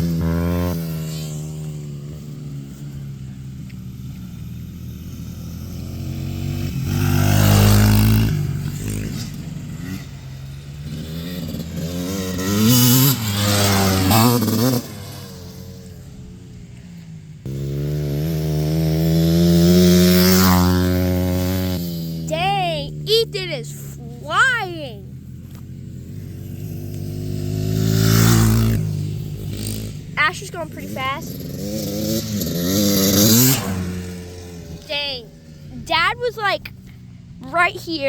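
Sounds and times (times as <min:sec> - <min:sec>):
dirt bike engines revving: 0:00.0 - 0:38.0.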